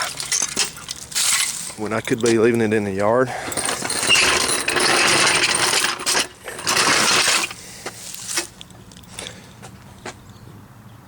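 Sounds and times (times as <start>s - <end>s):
keys jingling: 0.0s - 7.6s.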